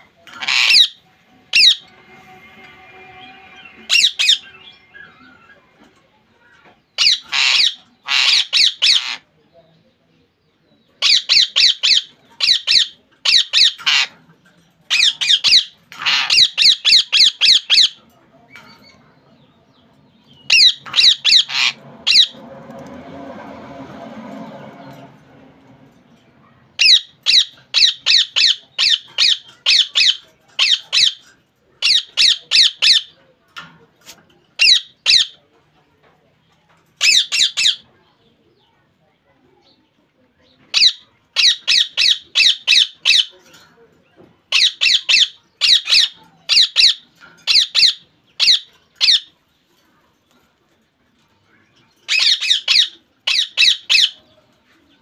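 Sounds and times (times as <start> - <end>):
parrot squawking: 0.3 - 1.9, 2.9 - 5.4, 7.0 - 9.2, 11.0 - 14.2, 14.9 - 18.0, 20.5 - 22.4, 26.8 - 31.2, 31.8 - 33.1, 34.6 - 35.4, 37.0 - 37.8, 40.7 - 43.3, 44.5 - 49.3, 52.1 - 54.2.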